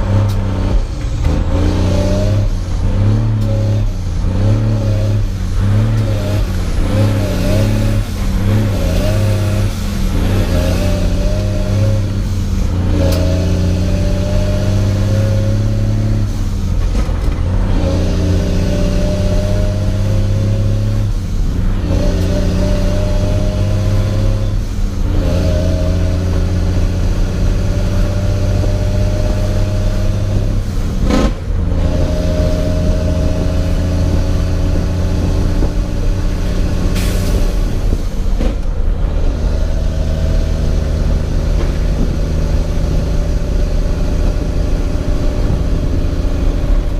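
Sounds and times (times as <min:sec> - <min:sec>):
truck diesel engine shifting gears: 0:00.0 - 0:46.9.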